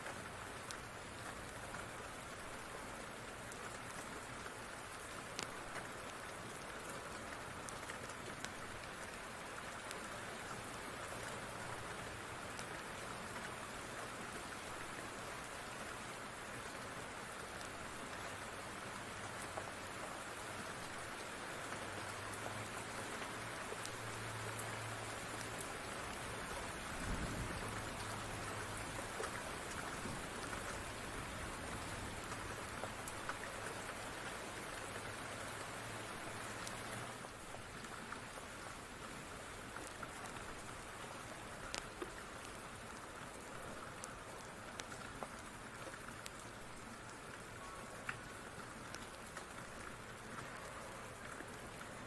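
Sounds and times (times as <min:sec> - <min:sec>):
steady rain: 0:00.0 - 0:52.0
wood fire crackling: 0:05.3 - 0:06.8, 0:39.7 - 0:52.0.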